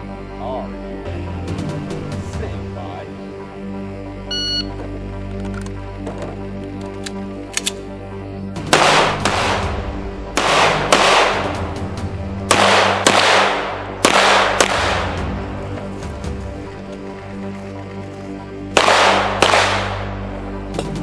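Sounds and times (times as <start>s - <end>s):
background music: 0.0s - 21.0s
loud gunshots with echo: 8.6s - 9.8s, 10.4s - 11.7s, 12.5s - 15.3s, 18.7s - 20.2s.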